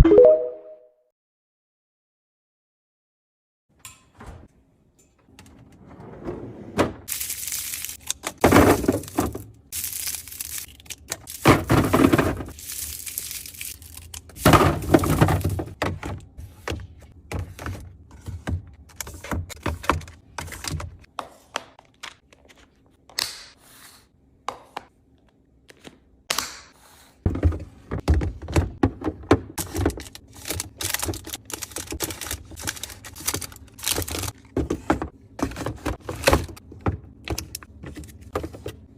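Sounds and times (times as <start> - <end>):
packaging rustling: 7.1 - 15.6, 29.6 - 34.4
containers knocking and clunking: 14.4 - 20.1, 27.3 - 30.1, 34.4 - 38.9.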